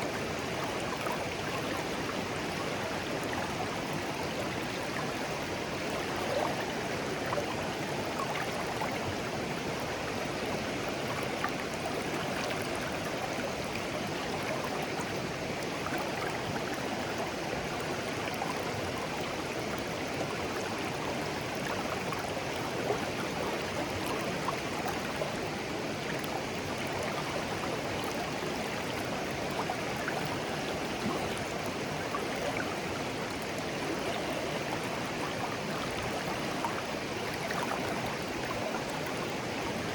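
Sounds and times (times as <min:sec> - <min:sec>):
stream babbling over stones: 0:00.1 - 0:39.9.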